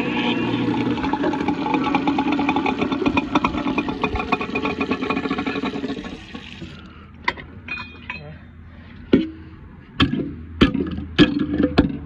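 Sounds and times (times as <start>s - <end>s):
garbage disposal running: 0.0s - 6.9s.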